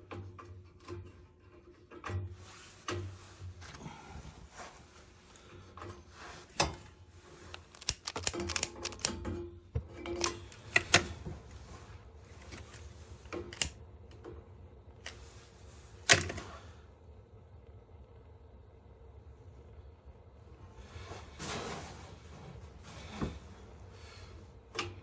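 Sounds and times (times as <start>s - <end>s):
clicks and knocks on boiler controls: 0.0s - 3.9s, 5.4s - 16.7s, 23.1s - 25.0s.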